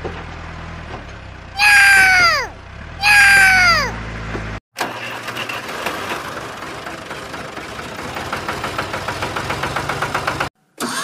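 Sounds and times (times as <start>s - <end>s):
engine idling with rhythmic knock: 5.2s - 10.5s.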